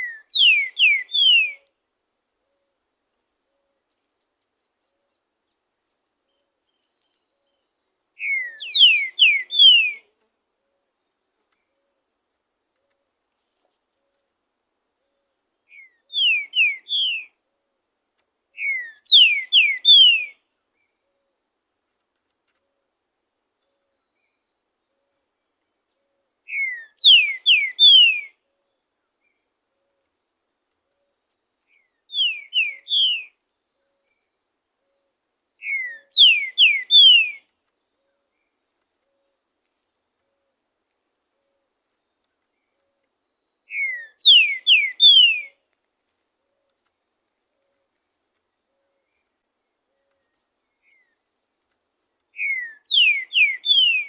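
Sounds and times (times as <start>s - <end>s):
bird singing falling whistled notes: 0.0s - 1.6s, 8.2s - 10.0s, 15.7s - 17.3s, 18.6s - 20.3s, 26.5s - 28.3s, 31.8s - 33.4s, 35.6s - 37.4s, 43.7s - 45.6s, 52.4s - 54.0s.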